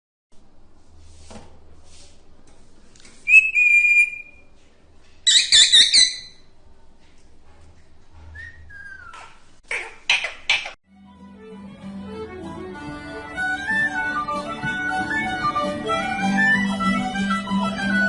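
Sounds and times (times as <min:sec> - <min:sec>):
high whistles: 0:03.3 - 0:04.4.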